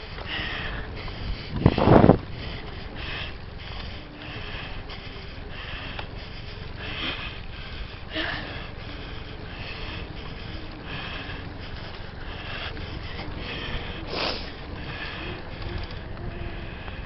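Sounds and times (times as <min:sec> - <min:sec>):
person breathing hard: 0:00.0 - 0:17.0
wind rumble on microphone: 0:00.0 - 0:17.0
loud sniffs: 0:14.0 - 0:14.6.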